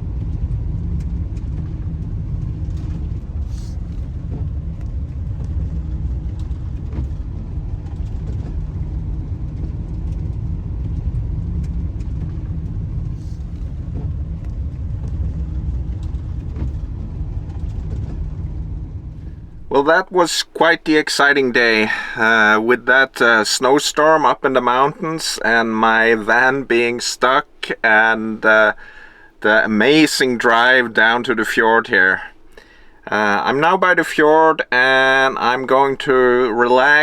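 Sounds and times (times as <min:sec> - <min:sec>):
van engine and tyres rumbling: 0:00.0 - 0:37.0
faint clicks: 0:00.1 - 0:19.8.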